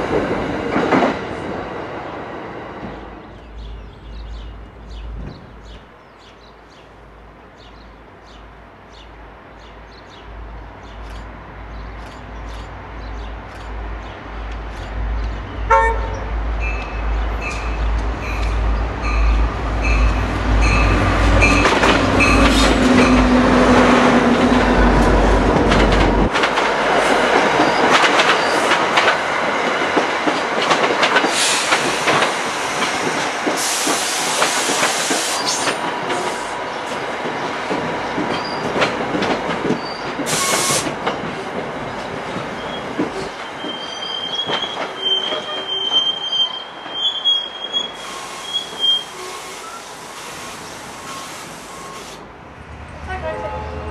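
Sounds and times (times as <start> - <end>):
diesel train rumble: 0.0 - 53.9
train horn: 15.7 - 16.4, 53.0 - 53.9
train bell ringing: 16.6 - 23.3
high wheel squeal: 42.6 - 52.2.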